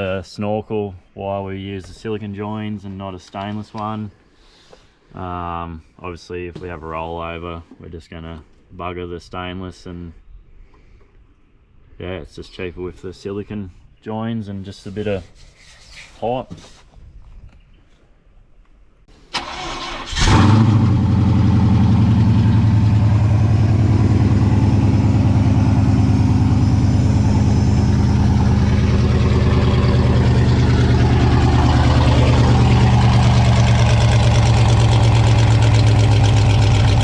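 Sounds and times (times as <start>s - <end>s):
engine cranking: 19.4s - 23.9s, 26.0s - 37.0s
engine idling loudly: 20.6s - 37.0s.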